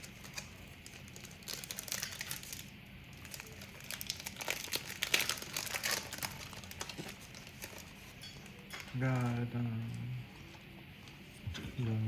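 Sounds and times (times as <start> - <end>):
wrapper crinkling and tearing: 0.0 - 9.4.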